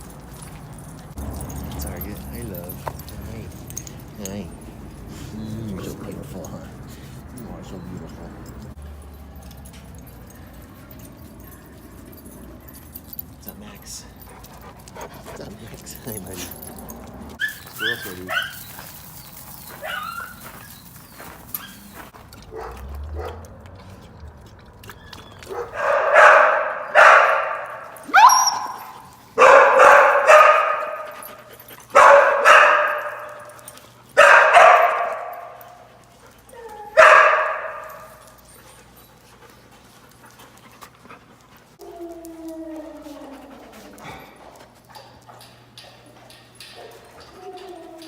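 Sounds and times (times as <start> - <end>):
dog barking with echo: 25.6 - 28.8, 29.4 - 31.1, 32.0 - 33.4, 34.2 - 35.6, 37.0 - 38.0.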